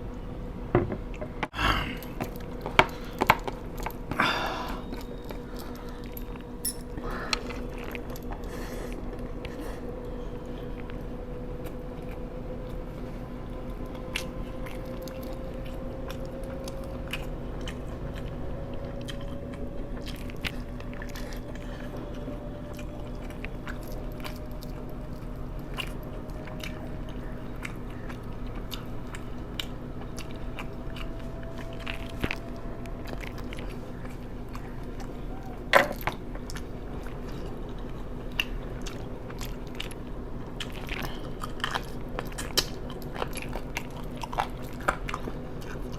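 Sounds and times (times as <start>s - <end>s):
low hum: 0.0s - 45.9s
person chewing food: 1.1s - 45.9s.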